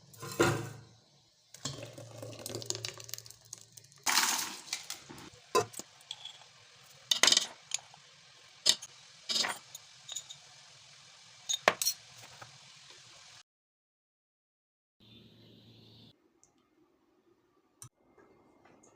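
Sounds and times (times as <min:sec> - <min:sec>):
utensils clinking against dishes: 0:07.1 - 0:07.8, 0:08.7 - 0:10.4, 0:11.5 - 0:12.1.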